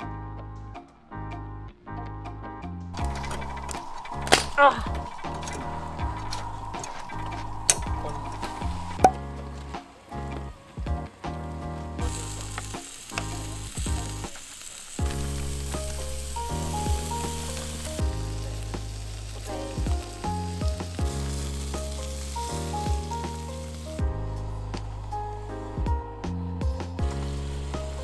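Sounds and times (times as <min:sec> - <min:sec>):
background music: 0:00.0 - 0:28.0
food sizzling in a pan: 0:03.0 - 0:09.1, 0:12.0 - 0:25.8, 0:27.1 - 0:28.0.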